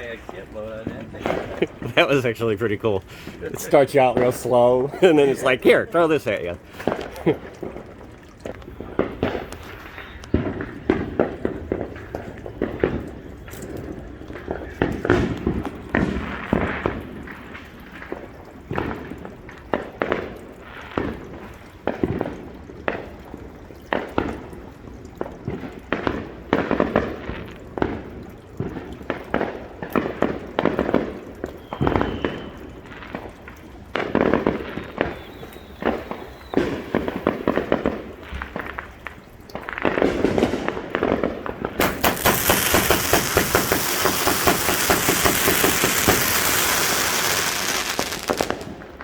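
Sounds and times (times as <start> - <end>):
fireworks bangs and crackling: 0.0 - 49.0
faint firework whistles: 9.6 - 10.4, 31.5 - 32.9, 34.6 - 37.2, 41.8 - 48.7.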